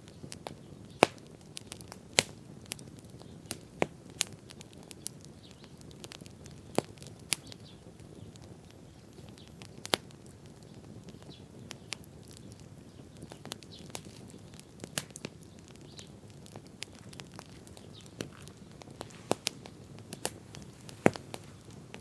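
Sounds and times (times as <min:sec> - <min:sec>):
bonfire pops and snaps: 0:00.0 - 0:22.0
low rush of burning: 0:00.0 - 0:22.0.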